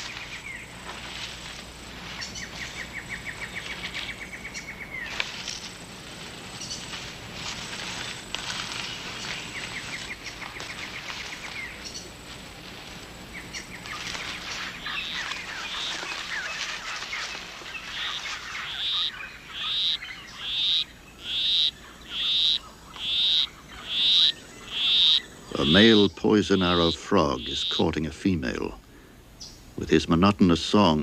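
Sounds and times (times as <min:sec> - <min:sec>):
rainforest chorus with high trills: 0:00.0 - 0:31.0.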